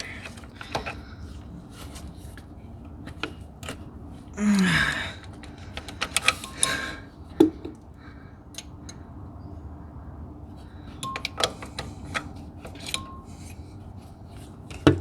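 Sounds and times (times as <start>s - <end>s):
person grunting with effort: 4.4s - 5.2s.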